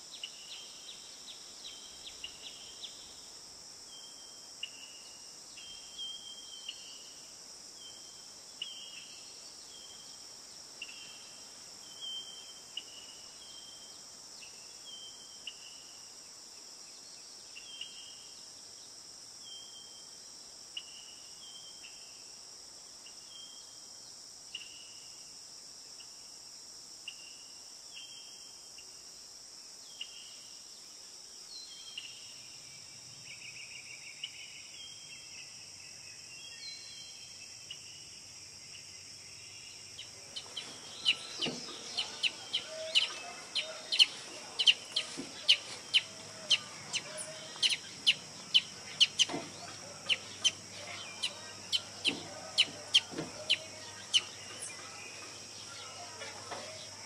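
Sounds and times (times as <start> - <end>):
steady high hiss: 0.0 - 57.0
bird chip calls: 40.0 - 56.8
birds calling falling notes: 40.2 - 56.8.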